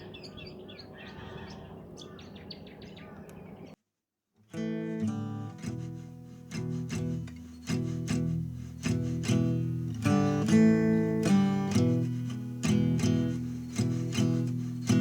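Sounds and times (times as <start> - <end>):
birds chirping: 0.0 - 3.8, 7.4 - 15.0
outdoor background noise: 0.0 - 3.8, 4.5 - 15.0
strummed guitar music: 4.5 - 15.0.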